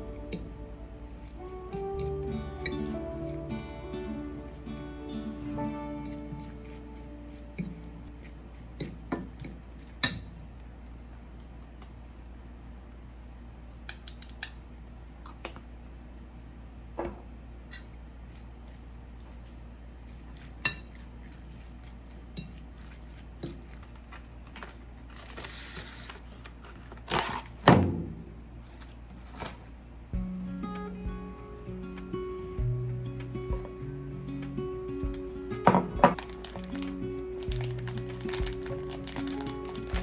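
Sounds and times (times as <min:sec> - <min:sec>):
utensils and dishes clinking: 0:00.0 - 0:10.3, 0:33.2 - 0:40.0
rustling noise: 0:28.4 - 0:29.8, 0:31.8 - 0:40.0.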